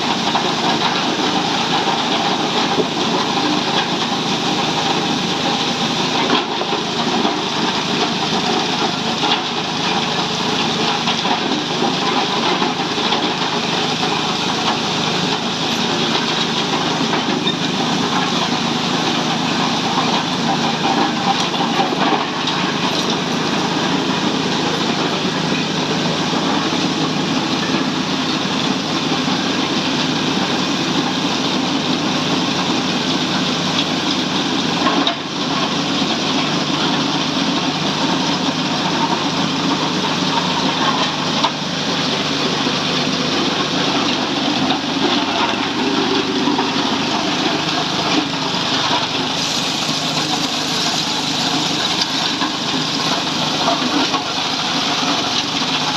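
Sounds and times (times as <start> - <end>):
ice crushing machine running: 0.0 - 55.9.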